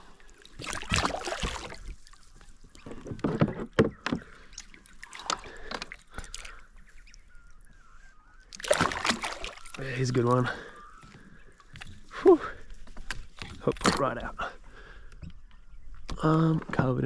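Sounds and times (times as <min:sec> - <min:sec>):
water splashing: 0:00.0 - 0:07.7, 0:08.5 - 0:10.7.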